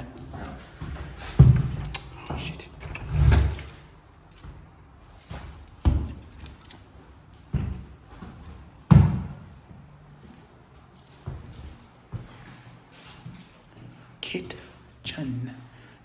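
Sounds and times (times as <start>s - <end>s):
dull thuds and knocks: 0.8s - 1.9s, 7.5s - 9.4s.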